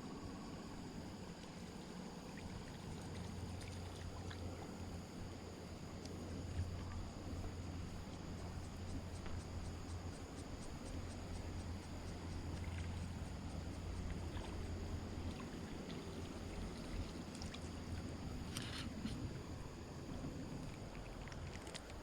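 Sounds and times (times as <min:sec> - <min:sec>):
creek water rumbling: 0:12.3 - 0:22.0.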